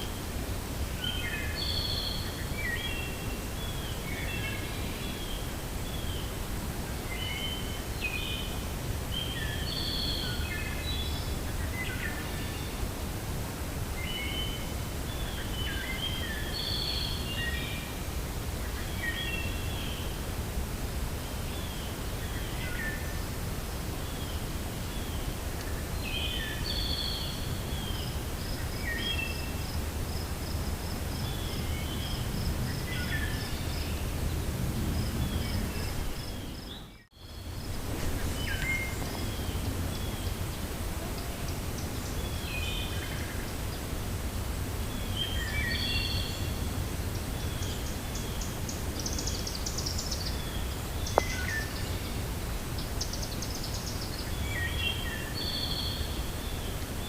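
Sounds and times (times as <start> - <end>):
wind through forest: 0.0 - 57.0
birds chirping: 30.6 - 43.9.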